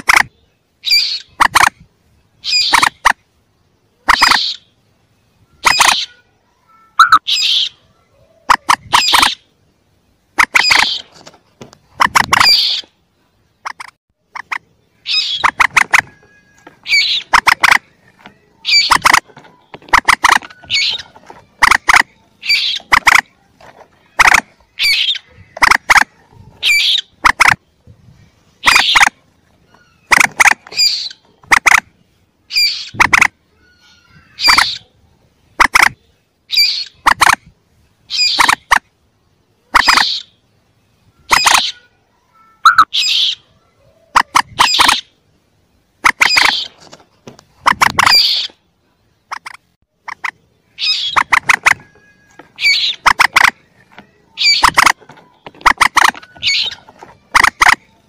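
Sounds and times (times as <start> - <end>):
chicks squeaking: 0.0 - 1.8, 2.4 - 3.2, 4.0 - 4.8, 5.5 - 6.2, 7.0 - 9.6, 10.4 - 13.0, 13.6 - 27.7, 28.5 - 31.8, 32.5 - 35.0, 38.1 - 38.8, 39.7 - 40.4, 41.2 - 41.9, 42.6 - 45.2, 46.0 - 46.8, 47.5 - 48.6, 49.3 - 58.0.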